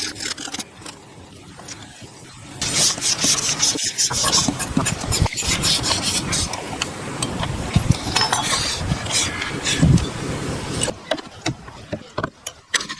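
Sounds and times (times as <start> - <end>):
rough scraping on wood: 2.6 - 6.6.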